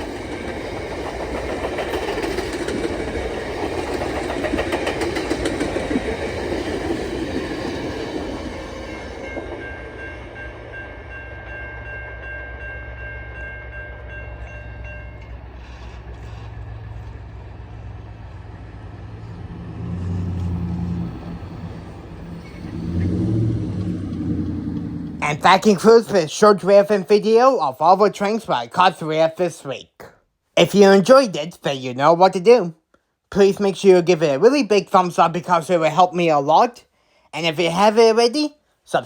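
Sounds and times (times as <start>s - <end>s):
train wheels clacking over rail joints: 0.0s - 8.4s
low rumble: 15.4s - 25.3s.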